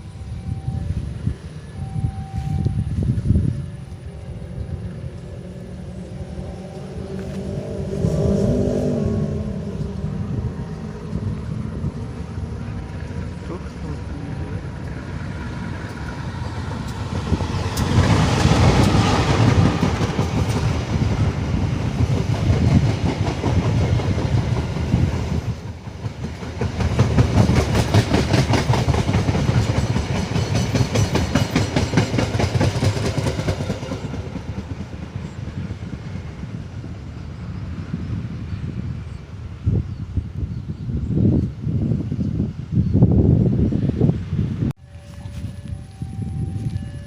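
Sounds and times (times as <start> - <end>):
train wheels clacking on rails: 12.5 - 37.0.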